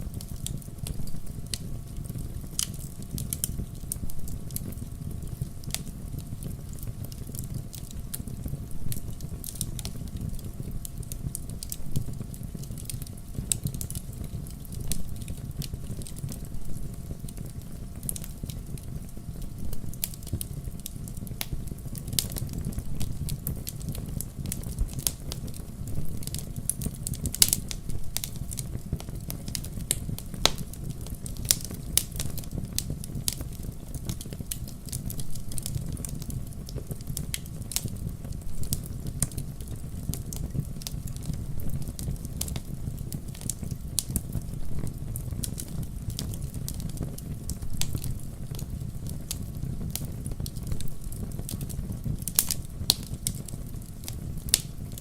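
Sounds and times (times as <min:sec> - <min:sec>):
fire rumbling: 0:00.0 - 0:55.0
wood crackling and popping: 0:00.0 - 0:55.0.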